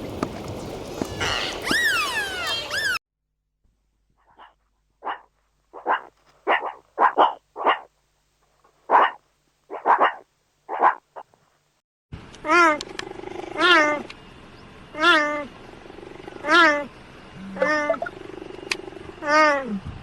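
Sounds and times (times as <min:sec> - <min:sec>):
dog barking: 0:04.3 - 0:07.9, 0:08.9 - 0:11.0.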